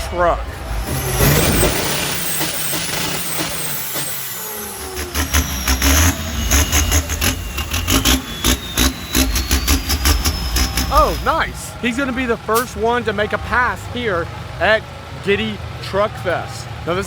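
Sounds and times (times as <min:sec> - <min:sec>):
diesel engine revving: 0:00.0 - 0:17.0
whistle rising in pitch: 0:00.7 - 0:12.8.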